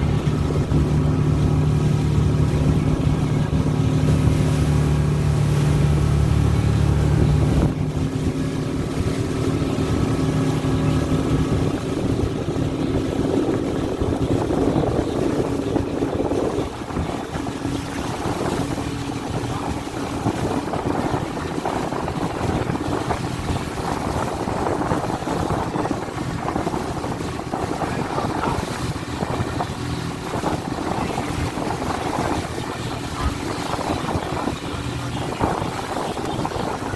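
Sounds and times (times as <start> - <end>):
boat engine hum: 0.0 - 36.9
wind and water noise: 0.0 - 36.9.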